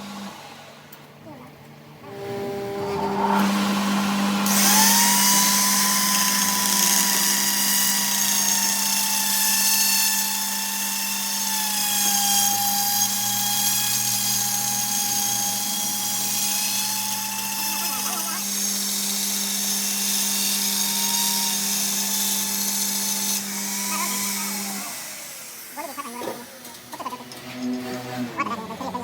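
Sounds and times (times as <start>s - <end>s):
power tool whining on metal: 2.0s - 29.0s
hiss of tool cutting: 3.2s - 28.1s.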